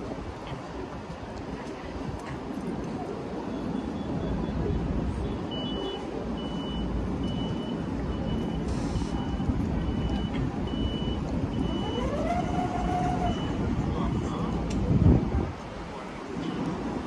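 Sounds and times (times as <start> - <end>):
low rumble of vehicles: 0.0 - 17.0
short high warning beeps: 5.3 - 12.0.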